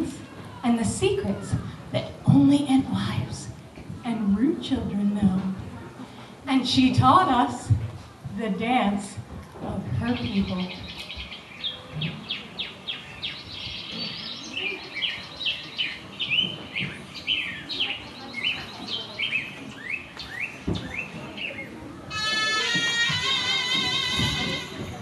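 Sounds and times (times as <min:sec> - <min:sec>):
birds chirping: 0:10.1 - 0:24.8.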